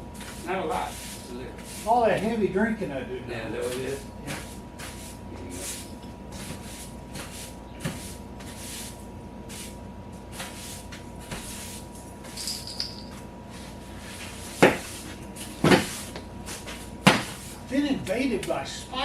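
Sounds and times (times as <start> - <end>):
loud sharp knock: 17.0 - 17.3.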